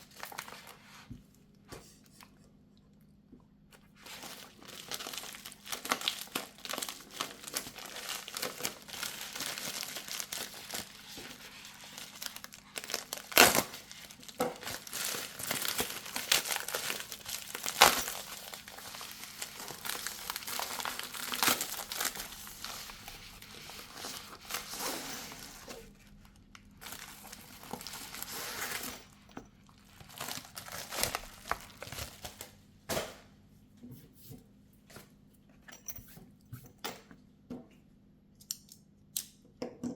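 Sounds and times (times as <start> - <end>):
wrapping crinkling and rustling: 0.0 - 1.1, 3.7 - 32.6.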